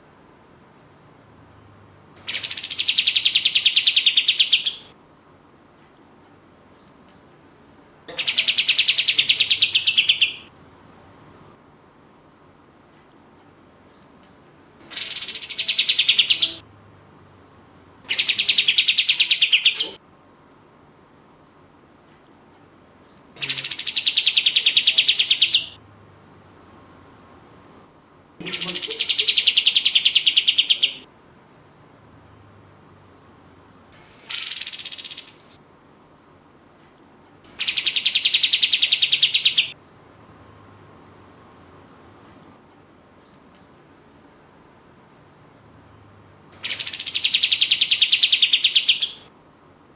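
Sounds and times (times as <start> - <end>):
bird singing rapid trill: 2.3 - 4.9, 8.2 - 10.5, 14.9 - 16.6, 18.1 - 20.0, 23.4 - 25.8, 28.4 - 31.0, 34.3 - 35.5, 37.6 - 39.8, 46.6 - 49.3
bird rattling call: 34.3 - 35.4.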